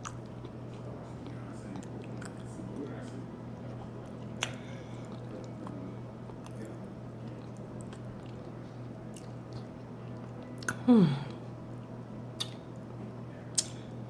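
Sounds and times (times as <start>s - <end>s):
person chewing: 0.0s - 2.5s, 3.1s - 11.4s
wet mouth sounds: 12.4s - 12.6s.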